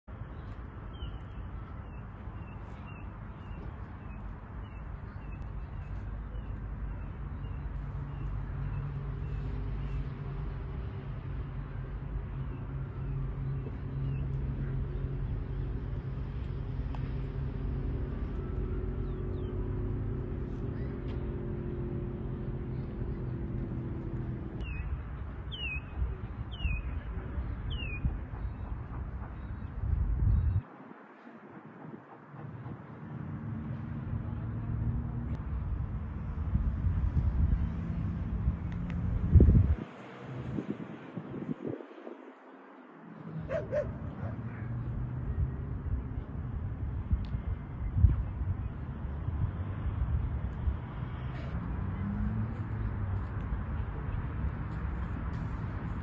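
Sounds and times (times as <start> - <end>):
outdoor background noise: 0.0 - 56.0
wind rumble on microphone: 0.1 - 56.0
bird chirping: 22.7 - 30.6.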